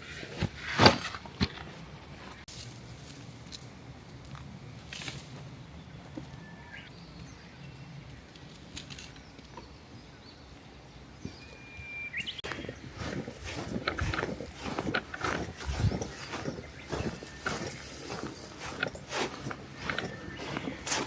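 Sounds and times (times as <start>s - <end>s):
birds chirping and whistling: 5.5s - 8.2s, 9.1s - 21.0s
loud rustling: 12.4s - 21.0s.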